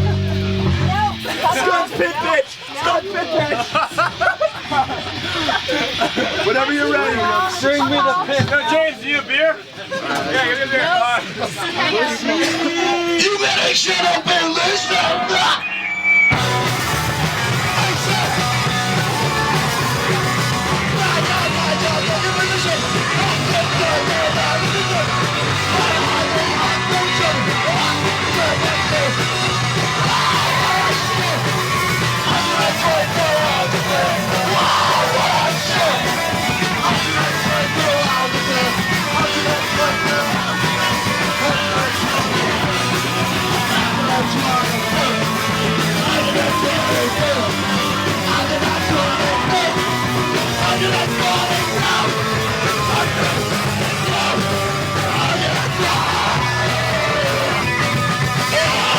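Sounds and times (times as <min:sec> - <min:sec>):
punk band playing: 0:00.0 - 0:08.5, 0:11.4 - 0:58.9
singer yelling: 0:11.8 - 0:58.9.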